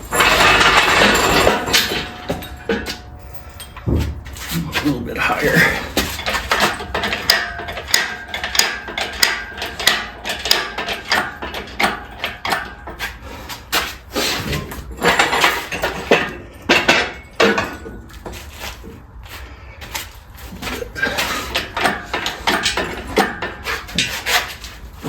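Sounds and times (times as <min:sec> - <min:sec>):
sharp metallic knocks: 0:00.0 - 0:14.0, 0:20.7 - 0:24.8
engine hoist chain clanking: 0:00.0 - 0:19.0, 0:19.8 - 0:25.0.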